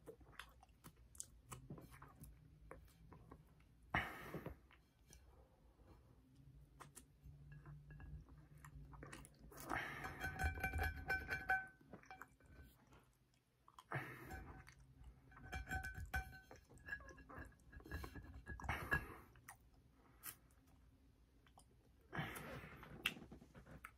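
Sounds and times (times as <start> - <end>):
person chewing: 0.0 - 3.6, 8.3 - 9.8, 12.0 - 15.1.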